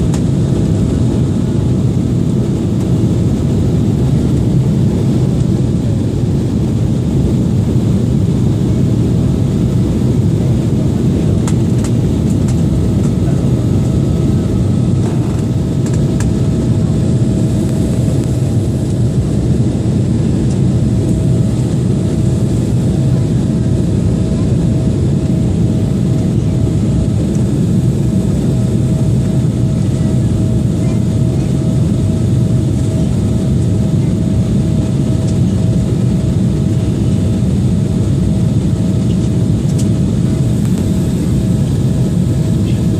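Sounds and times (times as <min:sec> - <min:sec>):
airliner engine and air noise: 0:00.0 - 0:42.9.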